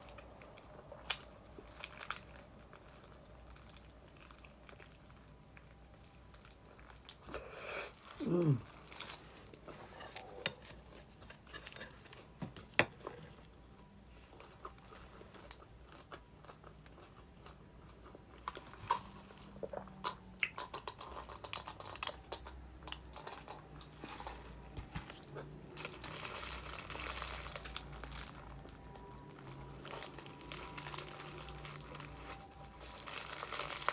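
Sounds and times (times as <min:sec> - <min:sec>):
wrapper crinkling: 0:00.0 - 0:09.6, 0:23.2 - 0:33.9.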